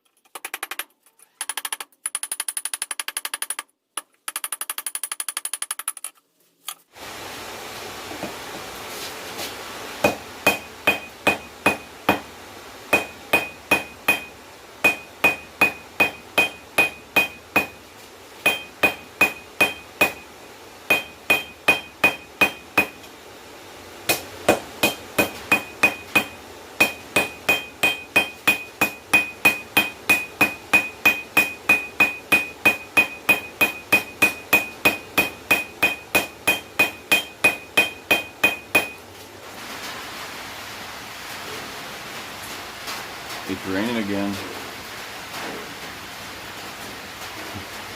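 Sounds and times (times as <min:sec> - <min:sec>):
hammer blows on an anvil: 0:12.9 - 0:17.8, 0:18.5 - 0:20.3, 0:20.9 - 0:23.0, 0:24.8 - 0:39.0.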